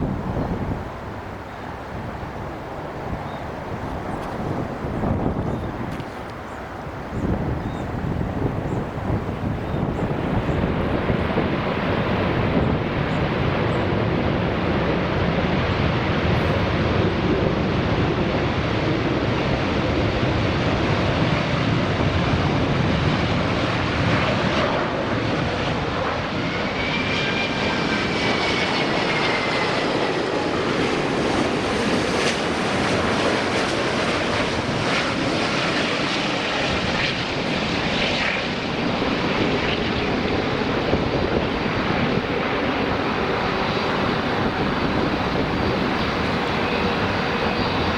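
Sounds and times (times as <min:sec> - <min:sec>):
jet engines on landing approach: 0:00.0 - 0:47.9
faint gliding whine: 0:24.2 - 0:47.9.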